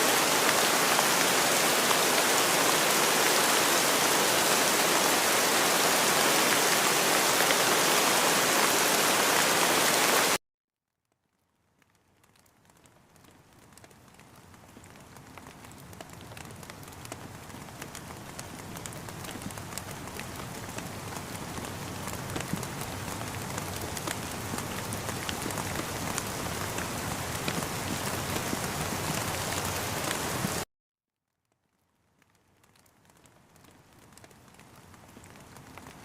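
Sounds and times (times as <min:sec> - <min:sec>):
dense rain: 0:00.0 - 0:10.4, 0:11.8 - 0:30.6, 0:32.2 - 0:36.0
raindrops tapping: 0:11.8 - 0:30.6.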